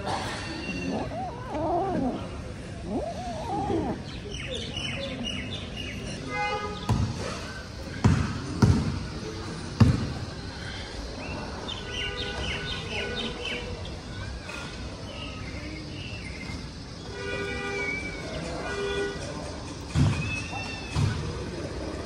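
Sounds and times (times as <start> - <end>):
small birds chirping: 0.6 - 8.1.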